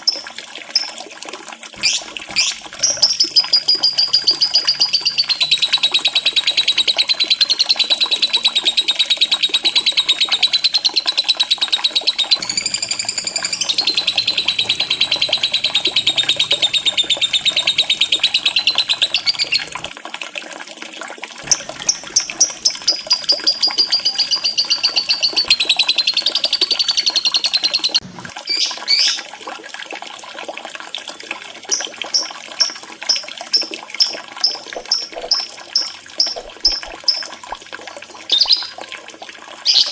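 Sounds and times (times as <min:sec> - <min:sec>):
lovebird short chirps: 0:01.8 - 0:19.8, 0:21.5 - 0:29.1
lovebird chattering trills: 0:01.8 - 0:19.9, 0:21.5 - 0:29.2.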